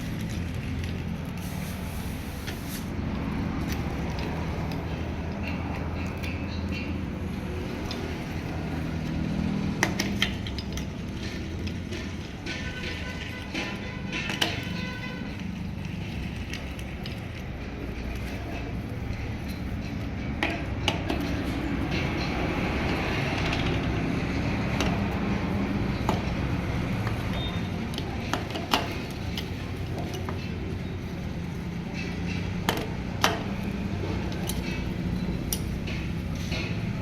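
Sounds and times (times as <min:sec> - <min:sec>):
metal tools clinking on engine parts: 0:27.3 - 0:37.0.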